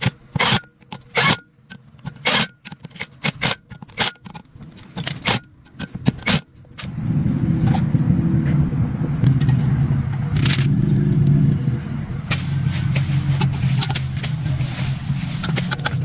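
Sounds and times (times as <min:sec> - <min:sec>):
motor humming: 0:06.8 - 0:16.0.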